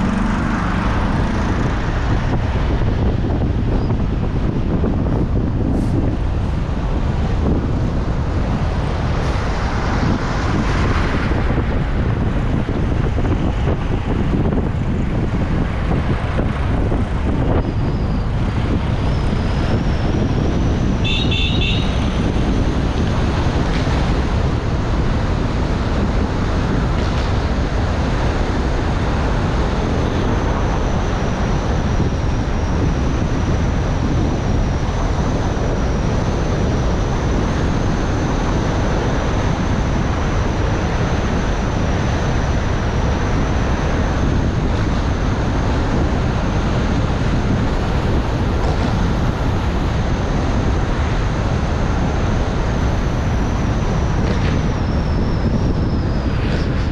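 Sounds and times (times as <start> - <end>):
car road and wind noise: 0.0 - 56.9
car horn toot: 21.0 - 22.2.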